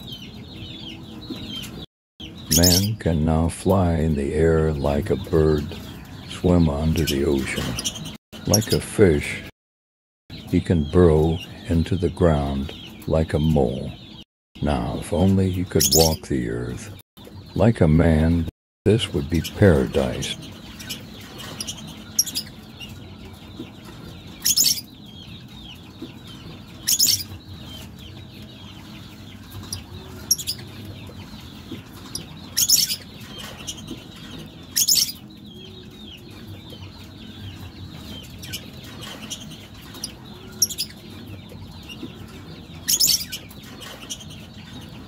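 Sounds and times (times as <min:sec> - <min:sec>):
birds shrill calls: 0:00.0 - 0:09.0, 0:10.4 - 0:18.4, 0:19.0 - 0:45.0
low background hum: 0:10.3 - 0:45.0.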